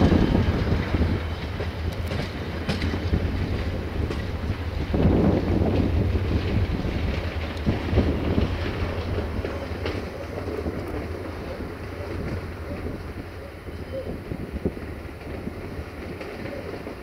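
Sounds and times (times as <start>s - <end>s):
train rumbling: 0.0s - 17.0s
wheel clacks over rail joints: 0.0s - 17.0s
wind buffeting microphone: 0.0s - 17.0s.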